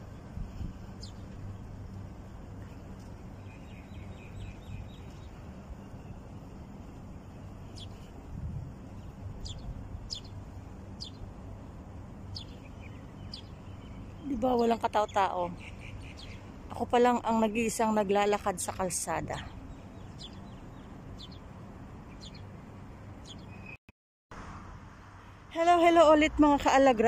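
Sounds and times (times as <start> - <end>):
low outdoor rumble: 0.0 - 23.5
small birds chirping: 0.5 - 1.4, 2.6 - 6.3, 7.0 - 11.4, 12.2 - 23.8.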